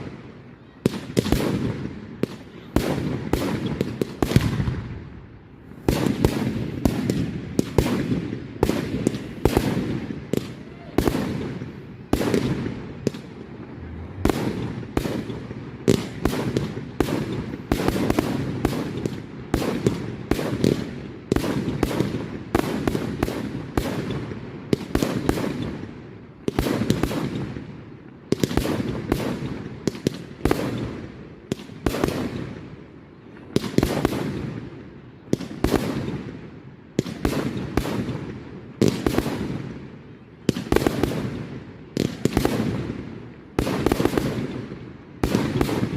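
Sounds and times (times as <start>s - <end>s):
fireworks bursting: 0.0s - 45.9s
low rumble: 13.2s - 15.0s.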